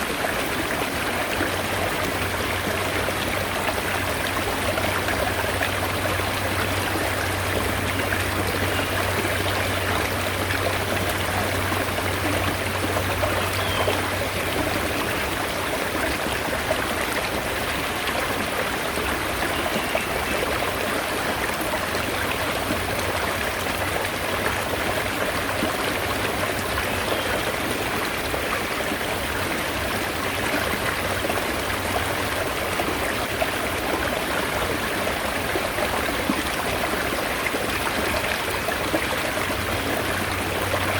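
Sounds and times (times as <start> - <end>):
stream water rushing and trickling: 0.0 - 40.9.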